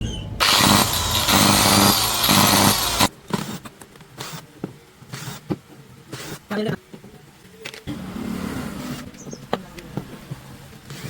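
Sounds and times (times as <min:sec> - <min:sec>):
angle grinder motor running: 0:00.4 - 0:03.1.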